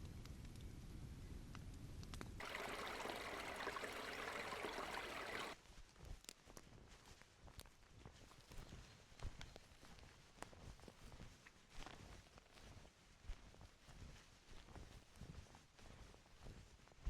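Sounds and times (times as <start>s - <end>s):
stream water rushing: 2.4s - 5.6s.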